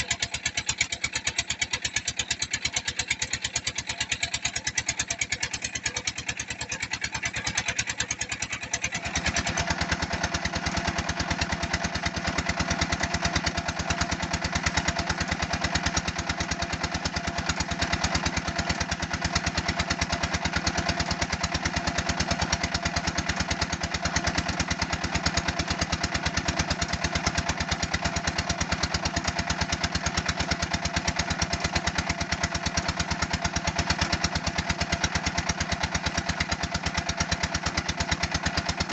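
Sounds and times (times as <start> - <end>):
press machine engine running: 8.4 - 38.9.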